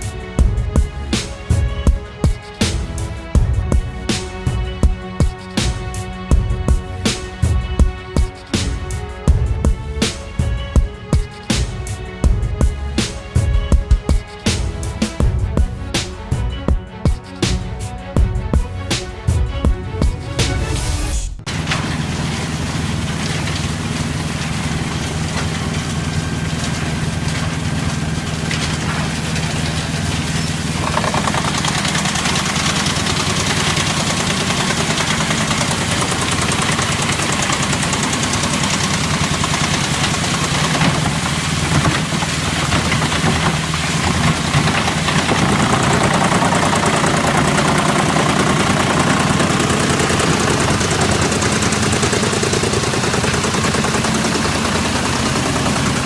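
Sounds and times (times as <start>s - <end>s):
heavy machine engine running: 0.0s - 56.0s
harsh machine noise under load: 20.1s - 56.0s.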